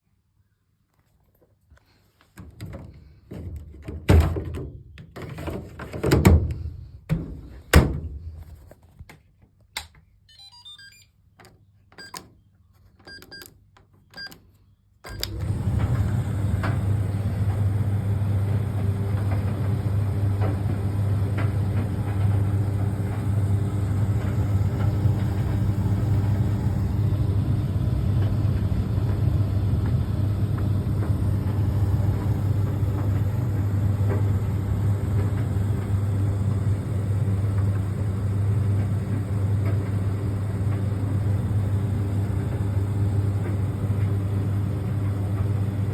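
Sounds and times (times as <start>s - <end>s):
clothes dryer running: 15.1s - 45.9s.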